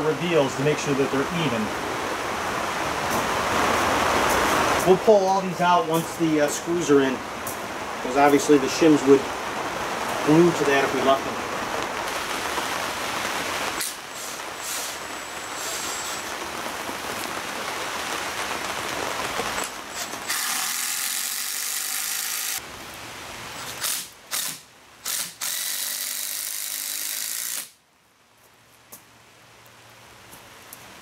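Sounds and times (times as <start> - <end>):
cordless drill driving screws: 20.0 - 22.6, 23.6 - 27.8.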